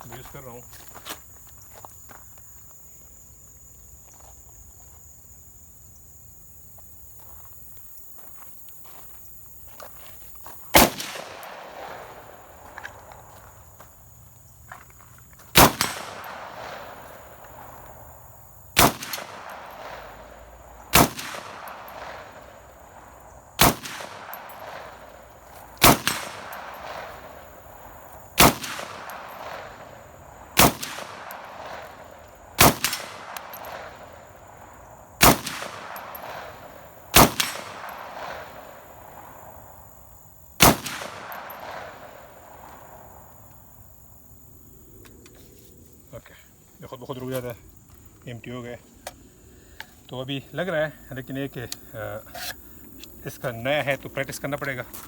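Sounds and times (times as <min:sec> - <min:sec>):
rifle shots with echo: 0:10.8 - 0:13.3, 0:15.5 - 0:18.0, 0:18.8 - 0:39.6, 0:40.6 - 0:43.3.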